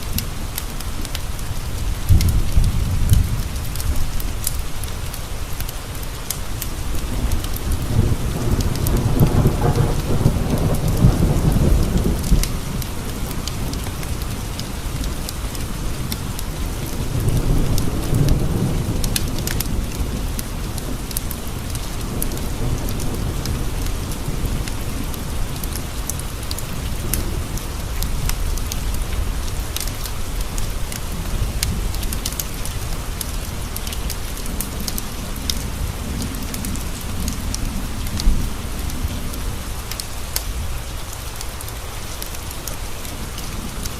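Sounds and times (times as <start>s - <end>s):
rain on a window: 0.0s - 43.9s
rolling thunder: 1.8s - 4.5s, 6.9s - 15.1s.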